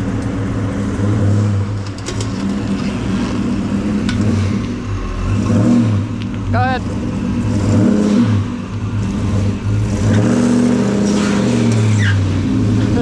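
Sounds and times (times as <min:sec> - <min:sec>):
car engine revving under load: 0:00.0 - 0:13.0
rear wheels spinning: 0:00.0 - 0:13.0.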